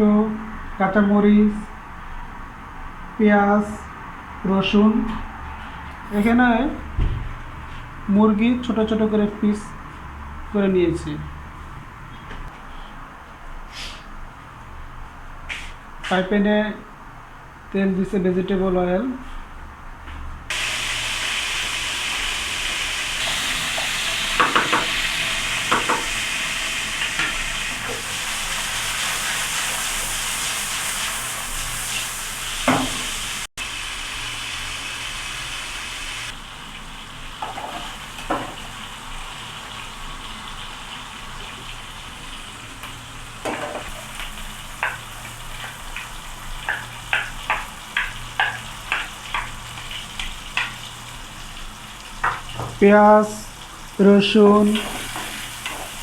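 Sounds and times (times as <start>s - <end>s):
food sizzling in oil: 20.5s - 56.0s.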